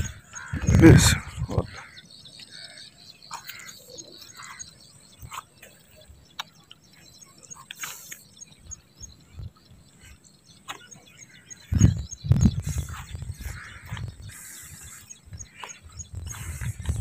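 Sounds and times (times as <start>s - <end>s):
birds chirping and calling: 0.0s - 17.0s
soft low thumps: 11.7s - 14.5s.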